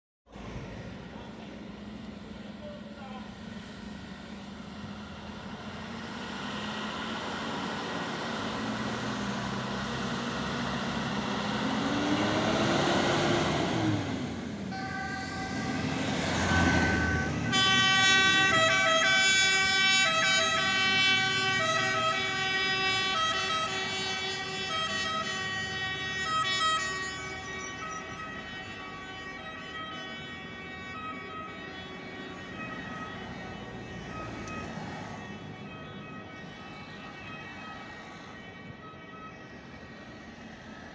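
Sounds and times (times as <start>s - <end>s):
fire engine noise: 0.3s - 40.9s
two-tone siren: 14.7s - 40.9s.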